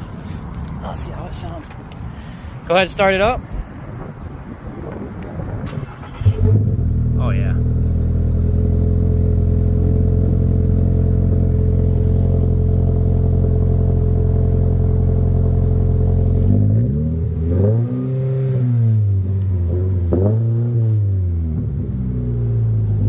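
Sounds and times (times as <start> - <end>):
car engine idling and revving: 5.0 - 23.0.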